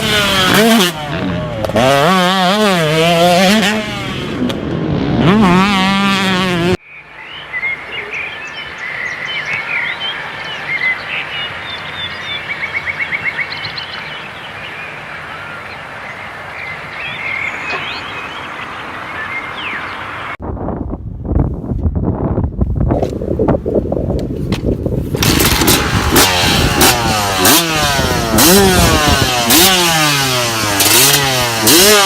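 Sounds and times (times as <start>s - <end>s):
motocross bike engine revving: 0.0s - 6.8s, 25.1s - 32.0s
birds chirping: 6.7s - 20.4s.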